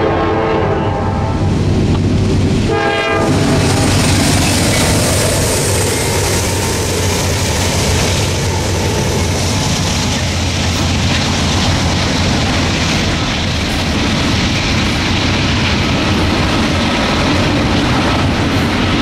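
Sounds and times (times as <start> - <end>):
train air horn blasts: 0.0 - 1.5, 2.6 - 4.0
locomotive engine and wheel noise: 0.0 - 19.0
freight cars rumbling: 0.9 - 19.0.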